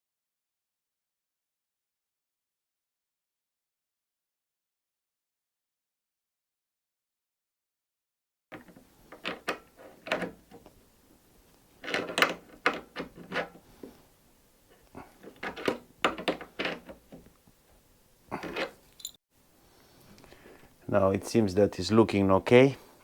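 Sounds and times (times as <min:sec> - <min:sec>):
tools and metal parts clattering: 0:18.4 - 0:19.2.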